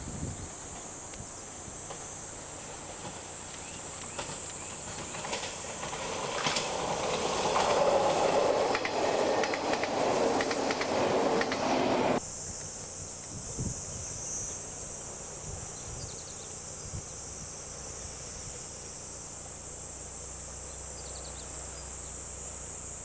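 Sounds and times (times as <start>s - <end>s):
train approaching: 0.0s - 12.2s
insects trilling: 0.0s - 23.0s
train wheels clicking over rail joints: 1.9s - 12.2s.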